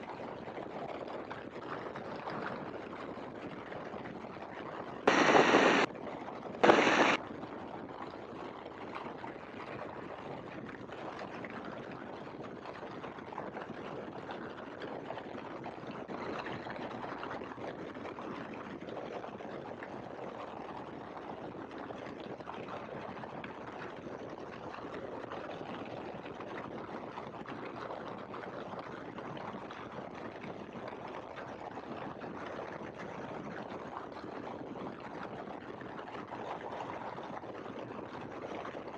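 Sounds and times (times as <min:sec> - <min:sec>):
biplane engine in flight: 0:05.1 - 0:05.9, 0:06.6 - 0:07.2
loud noise bursts: 0:05.1 - 0:05.9, 0:06.6 - 0:07.2.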